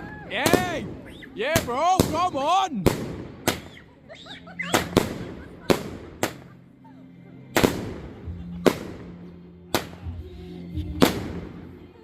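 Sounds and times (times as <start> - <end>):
fireworks bangs echoing: 0.4 - 3.9, 4.7 - 6.5, 7.6 - 9.2, 11.0 - 11.7.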